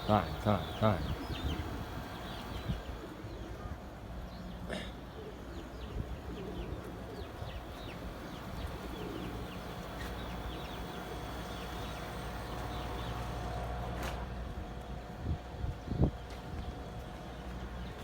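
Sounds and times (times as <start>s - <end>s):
pigeons cooing: 0.0s - 13.7s
birds chirping: 0.0s - 14.0s.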